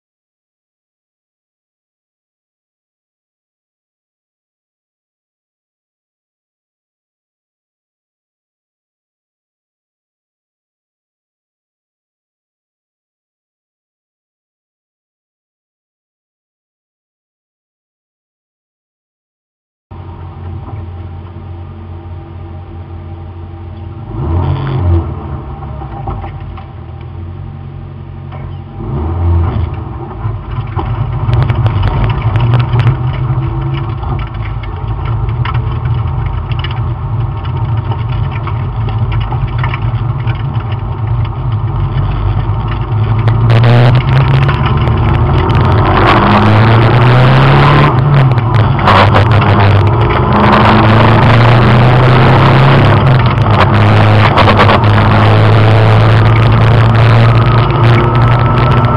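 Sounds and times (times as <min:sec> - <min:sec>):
wind and road noise: 0:19.9 - 0:58.9
car engine from inside cabin: 0:20.0 - 0:58.9.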